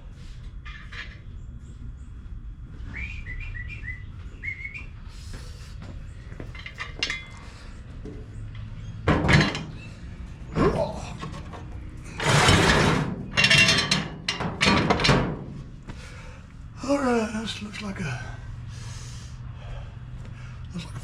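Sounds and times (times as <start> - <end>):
low steady hum: 0.0 - 21.0
loud clunk: 9.0 - 9.8, 12.2 - 15.6.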